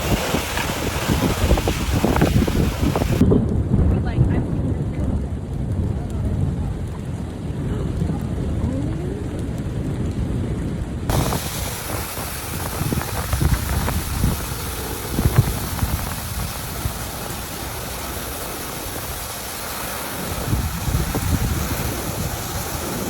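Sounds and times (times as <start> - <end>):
rain hiss: 0.0 - 3.2, 4.7 - 23.0
wind gusts buffeting microphone: 0.0 - 23.0.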